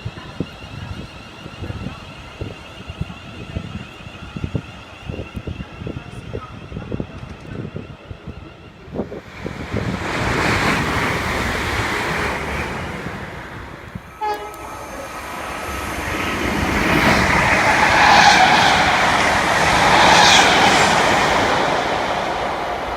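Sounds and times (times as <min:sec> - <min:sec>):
train passing: 0:00.0 - 0:22.9
brief tone: 0:14.1 - 0:15.2.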